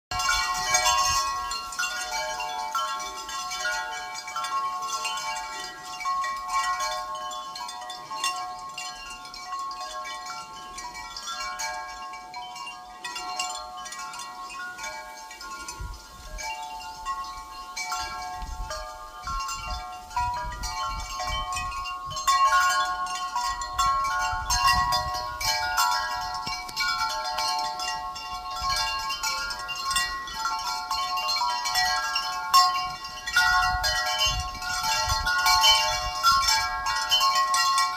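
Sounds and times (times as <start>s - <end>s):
wind chime ringing: 0.1s - 37.9s
wind gusting against microphone: 14.9s - 37.5s.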